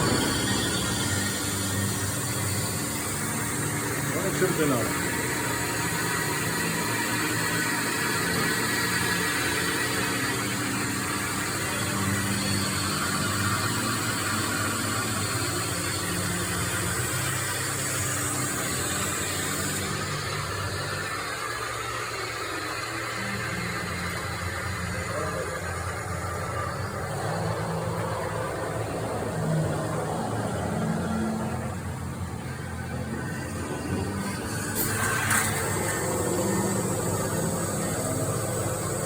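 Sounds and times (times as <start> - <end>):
machine hum: 0.0 - 39.0.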